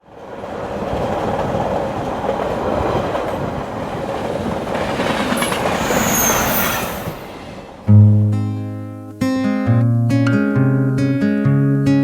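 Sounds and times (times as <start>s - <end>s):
train clickety-clack on rails: 0.0s - 7.9s
high metallic squeal: 5.2s - 7.7s.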